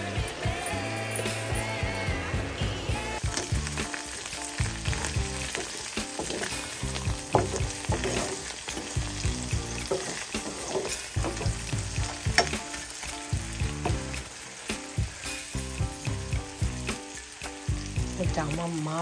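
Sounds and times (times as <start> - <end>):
shrimp sizzling in oil: 3.0 - 19.0
wooden spatula scraping pan: 4.9 - 12.6.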